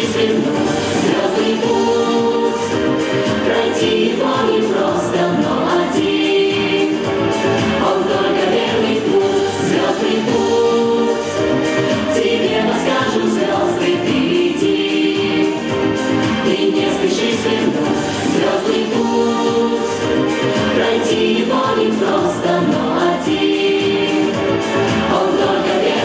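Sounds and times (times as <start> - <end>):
group singing a pop song: 0.0 - 26.0
instrumental accompaniment: 0.0 - 26.0.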